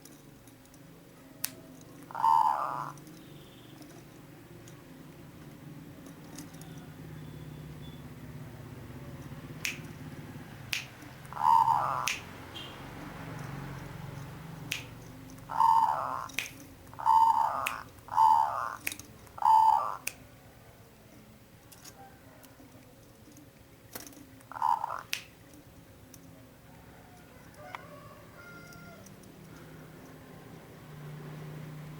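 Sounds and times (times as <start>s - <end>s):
dove cooing: 1.2s - 4.1s, 8.8s - 14.0s, 15.2s - 23.4s, 24.0s - 25.1s
sharp clicks: 9.2s - 20.3s.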